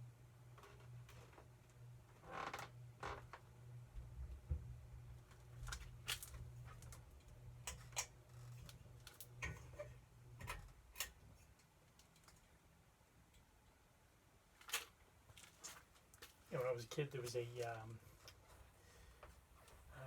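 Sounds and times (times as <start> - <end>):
ceiling fan humming: 0.0 - 15.4
fan ticks and clicks: 4.0 - 12.6.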